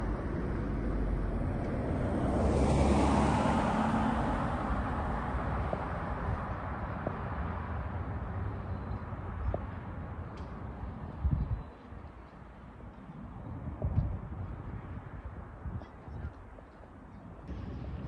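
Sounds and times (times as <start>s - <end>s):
vehicle passing by: 0.0s - 8.5s.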